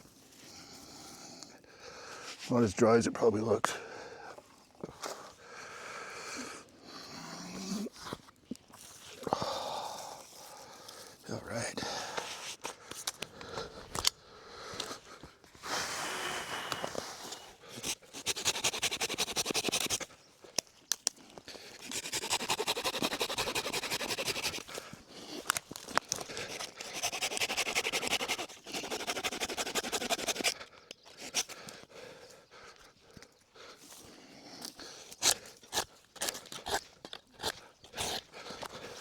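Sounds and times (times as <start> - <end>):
rasping scraping strokes: 16.9 - 20.1, 21.8 - 31.6.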